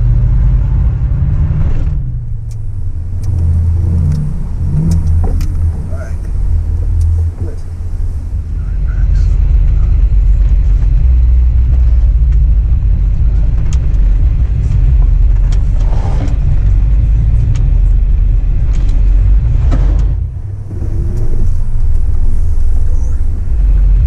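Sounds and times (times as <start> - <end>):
truck engine rumbling: 0.0 - 24.0
scattered clicks: 2.4 - 7.7.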